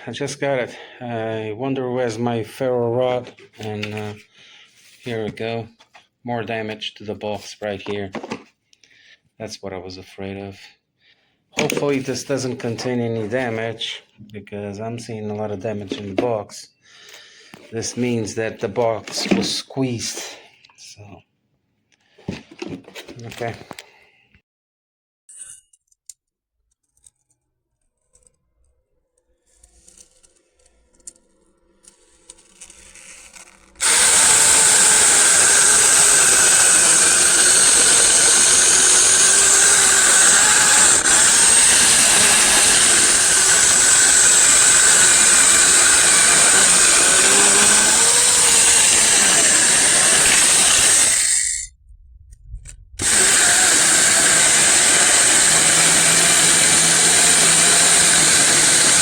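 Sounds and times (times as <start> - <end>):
electric chainsaw whine: 31.8 - 51.7, 53.0 - 59.0.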